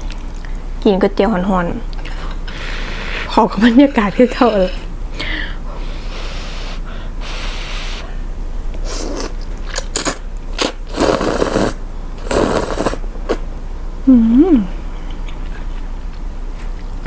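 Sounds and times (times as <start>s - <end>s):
noodles being slurped: 8.8s - 13.4s.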